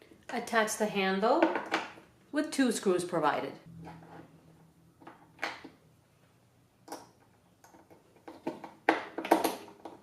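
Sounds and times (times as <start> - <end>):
plastic knocks and rattles: 6.9 - 10.0.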